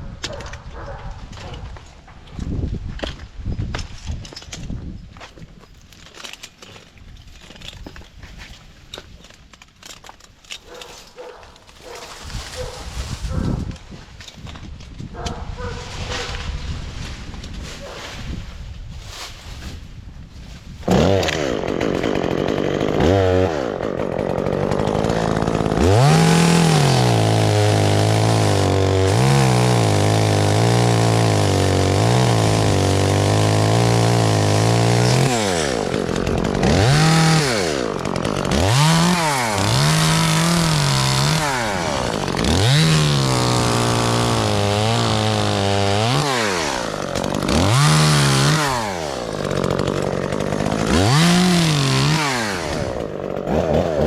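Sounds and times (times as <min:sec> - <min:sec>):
chainsaw revving: 0:20.8 - 0:54.0.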